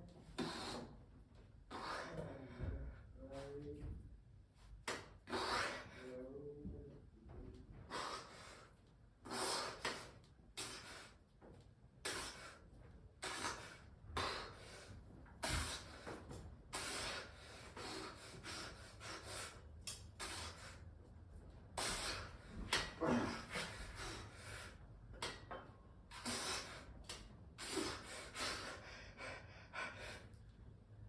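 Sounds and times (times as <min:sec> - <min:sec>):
person breathing hard through mouth: 0:05.2 - 0:06.0, 0:07.9 - 0:11.2, 0:12.0 - 0:20.8, 0:21.8 - 0:24.8, 0:26.1 - 0:30.4.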